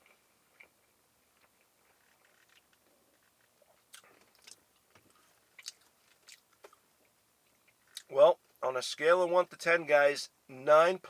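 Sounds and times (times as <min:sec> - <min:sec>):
person chewing food: 0:00.0 - 0:08.1.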